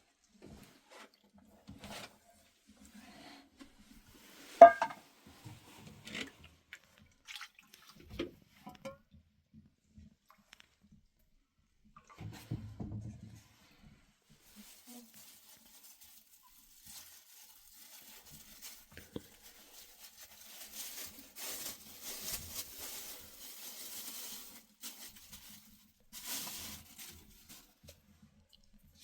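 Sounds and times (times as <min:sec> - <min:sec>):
rustling and crinkling: 0:03.6 - 0:08.8, 0:12.0 - 0:28.5.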